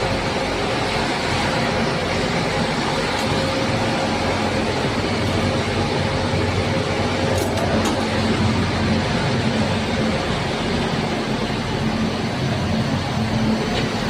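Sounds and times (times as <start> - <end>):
electric locomotive running: 0.0 - 14.0.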